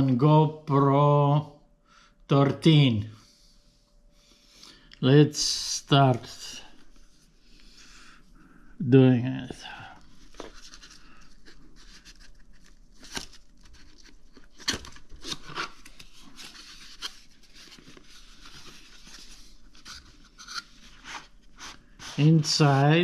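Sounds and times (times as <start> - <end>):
packaging rustling and scraping: 10.0 - 23.0.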